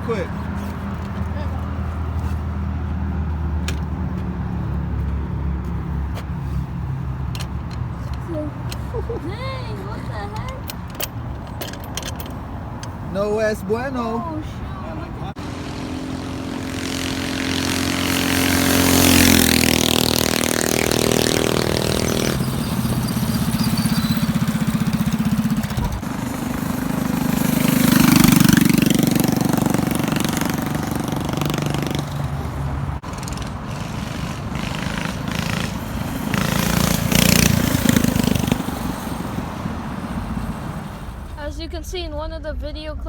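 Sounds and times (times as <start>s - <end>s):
mini bike engine revving: 7.6s - 11.0s, 13.1s - 41.3s.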